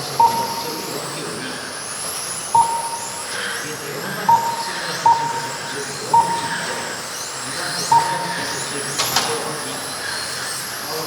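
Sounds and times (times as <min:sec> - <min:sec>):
rc car motors whining: 0:00.0 - 0:11.0
short electronic beeps: 0:00.1 - 0:01.0, 0:02.3 - 0:07.0, 0:07.7 - 0:09.4.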